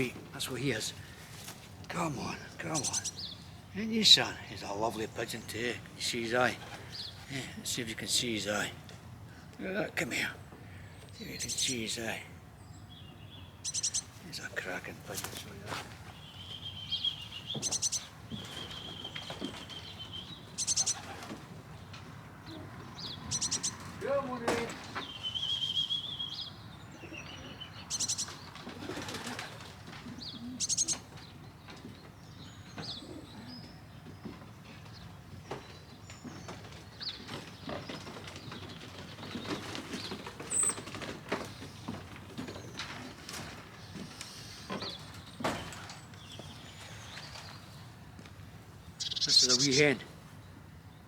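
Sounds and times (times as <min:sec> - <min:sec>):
songbird trilling and chirping: 0:01.8 - 0:07.4, 0:10.9 - 0:15.5, 0:16.1 - 0:21.3, 0:22.5 - 0:28.5, 0:30.1 - 0:40.8, 0:48.8 - 0:51.0
pigeons pattering and knocking: 0:17.3 - 0:25.6, 0:27.8 - 0:48.4.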